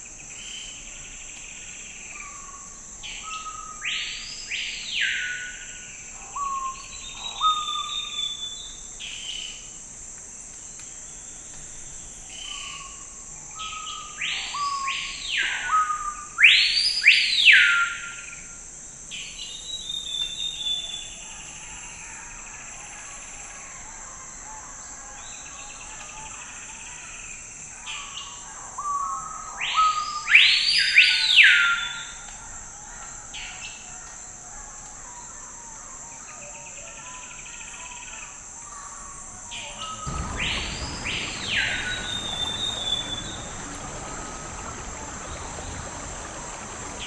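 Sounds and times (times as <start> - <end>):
soft bird chirps: 39.8 - 47.0
songbird whistled song: 40.0 - 47.0.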